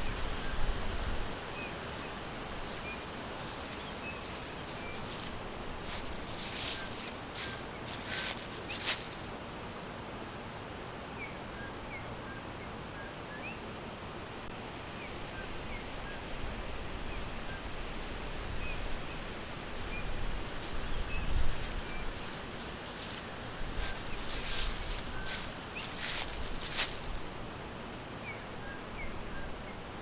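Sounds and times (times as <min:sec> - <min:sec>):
wind through leaves: 0:00.0 - 0:30.0
small birds chirping: 0:01.5 - 0:09.6, 0:18.6 - 0:27.7.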